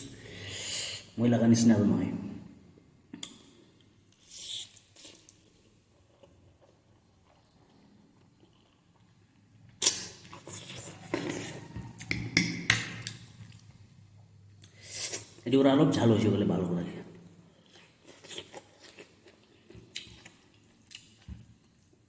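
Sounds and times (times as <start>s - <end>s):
slurping and chewing noodles: 9.8s - 12.1s.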